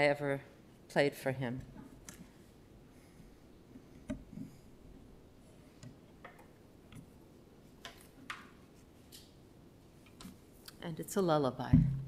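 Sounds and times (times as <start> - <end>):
faint clicks and small knocks: 5.7 - 7.2, 10.0 - 10.8.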